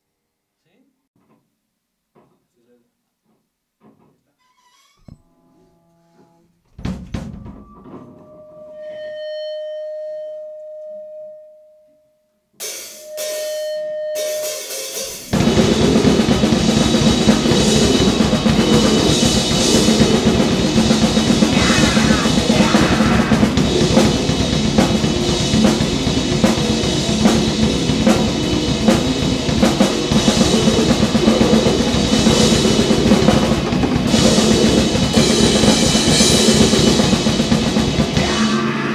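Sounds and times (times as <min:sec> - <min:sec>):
distorted noise band with fast drumming: 0:15.3 - 0:38.9
drum hit: 0:15.3 - 0:38.9.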